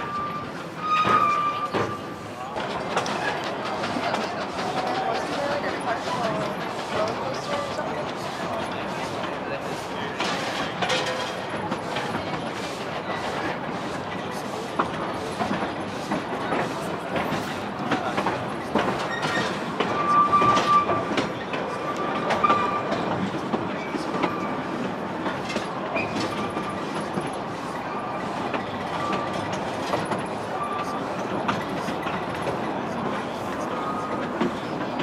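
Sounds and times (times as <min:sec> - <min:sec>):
high wheel squeals: 0:00.0 - 0:02.3, 0:19.0 - 0:23.1
wheels rumbling on rail: 0:00.0 - 0:35.0
clicks over rail joints: 0:01.0 - 0:09.4, 0:10.0 - 0:35.0.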